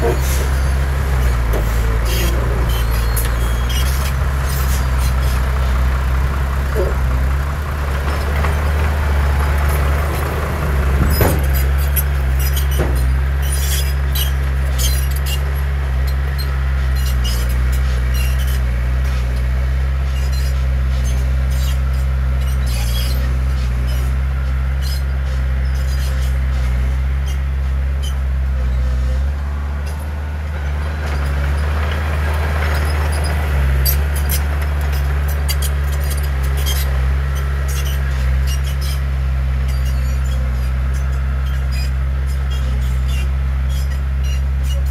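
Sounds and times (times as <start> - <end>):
heavy diesel engine droning: 0.0 - 44.9.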